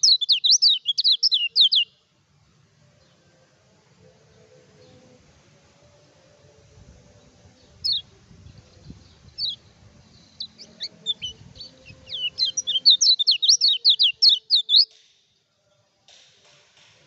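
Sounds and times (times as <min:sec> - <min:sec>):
bird twittering song: 0:00.0 - 0:02.0, 0:07.6 - 0:15.0.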